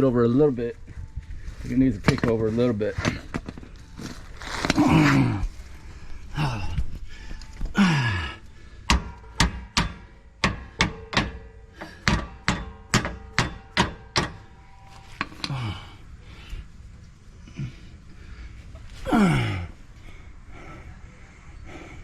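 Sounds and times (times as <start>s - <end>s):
hammer striking metal: 8.9s - 14.6s
faint metallic ring: 13.5s - 15.7s.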